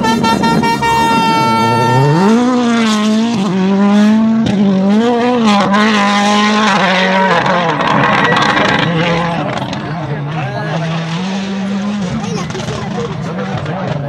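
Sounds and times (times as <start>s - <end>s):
steady high tone: 0.0s - 2.8s
rally car engine revving: 0.0s - 14.0s.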